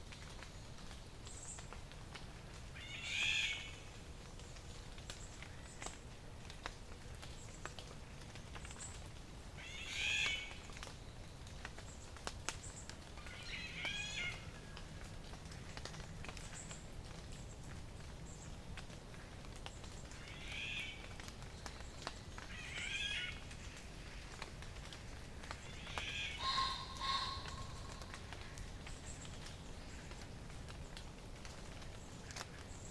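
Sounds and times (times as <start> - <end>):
songbird singing: 25.6 - 30.2.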